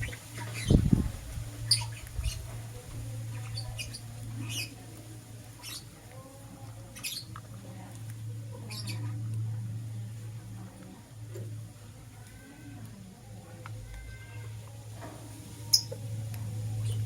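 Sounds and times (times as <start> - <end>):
birds chirping squeakily: 0.0 - 4.8, 5.5 - 6.0, 6.9 - 7.4, 8.6 - 9.2, 15.6 - 16.0
steady low hum: 0.0 - 17.0.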